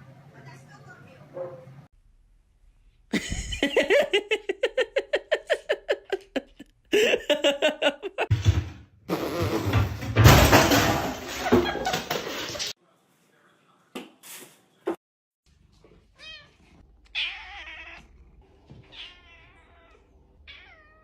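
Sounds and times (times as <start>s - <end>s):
person laughing hard: 3.1s - 8.3s
rough laughter with noise: 3.1s - 8.3s.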